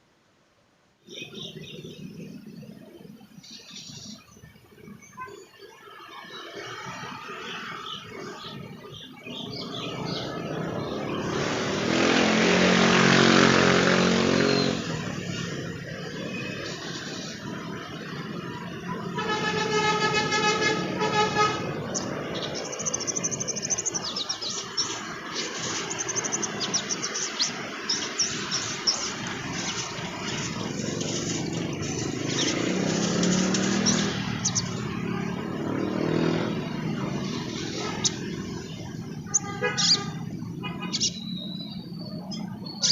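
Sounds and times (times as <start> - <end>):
background traffic noise: 0.0 - 42.9
bird twittering chirps: 1.0 - 2.8, 3.4 - 11.6, 21.8 - 42.9
vehicle horn blaring: 19.0 - 21.9, 39.2 - 41.0.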